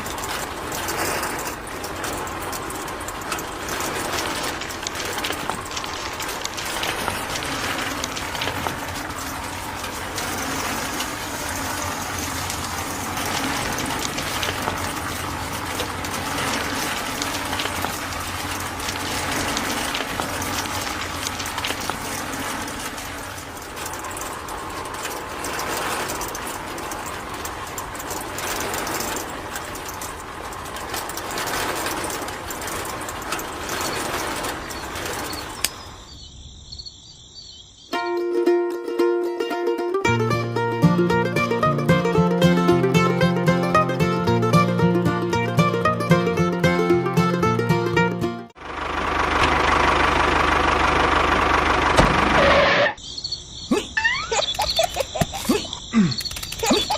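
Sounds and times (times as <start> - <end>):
small tractor motor running: 0.0 - 36.1, 39.6 - 53.0, 54.0 - 56.9
dense crackling rattle: 0.0 - 36.8, 39.7 - 56.9.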